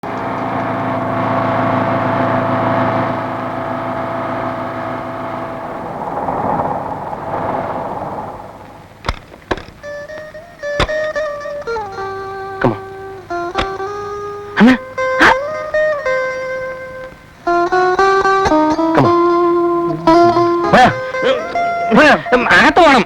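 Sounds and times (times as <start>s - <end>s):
vehicle engine running: 0.0s - 22.0s
sharp knocks: 8.5s - 11.9s, 13.4s - 14.1s.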